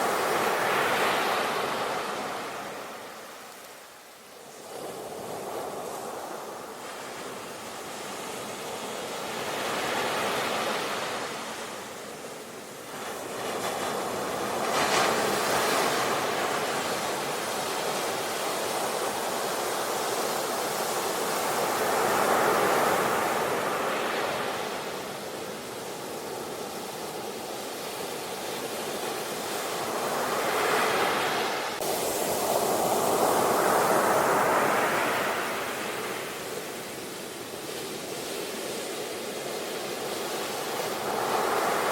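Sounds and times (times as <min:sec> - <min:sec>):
ocean waves breaking: 0:29.3 - 0:37.1.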